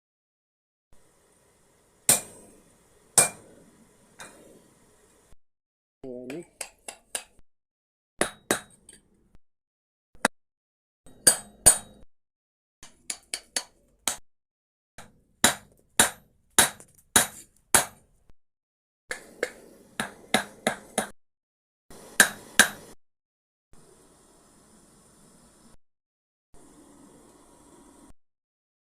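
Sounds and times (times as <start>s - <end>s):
faint steady hiss: 1.0s - 5.4s, 23.8s - 25.8s, 26.6s - 28.1s
hammer striking metal: 2.1s - 2.5s, 3.2s - 3.5s, 8.2s - 8.8s, 11.1s - 12.0s, 15.0s - 18.0s, 22.2s - 22.9s.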